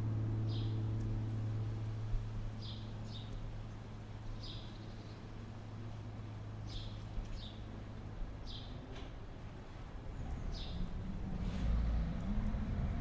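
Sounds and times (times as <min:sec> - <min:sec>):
bird chirping: 0:02.6 - 0:03.4, 0:04.2 - 0:05.3, 0:06.6 - 0:07.6.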